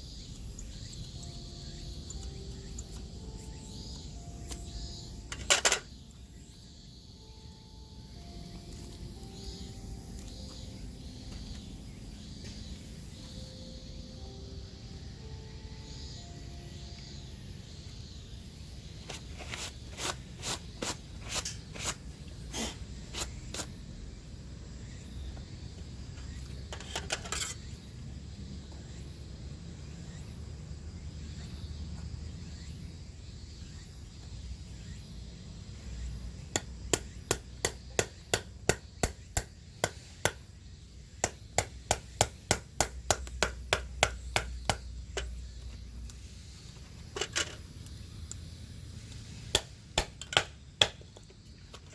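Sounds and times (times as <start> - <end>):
sharp hammer strikes: 36.6 - 40.5, 41.2 - 44.9, 49.5 - 51.1.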